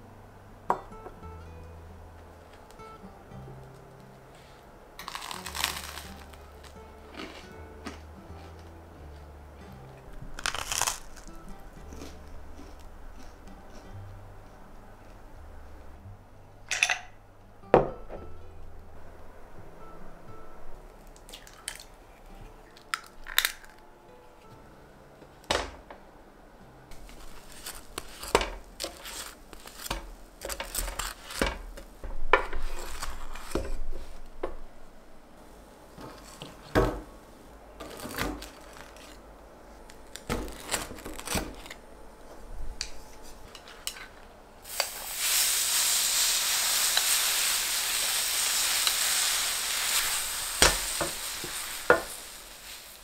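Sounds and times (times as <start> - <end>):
utensils and dishes clinking: 16.7 - 17.2
food sizzling on a hot pan: 44.6 - 53.0.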